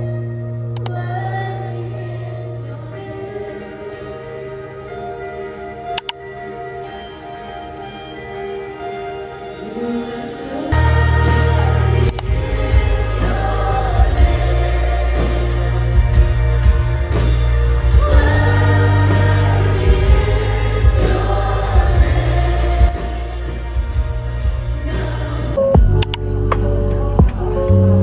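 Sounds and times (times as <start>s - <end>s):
choir singing worship music: 0.0s - 27.7s
band with heavy bass: 9.5s - 28.0s.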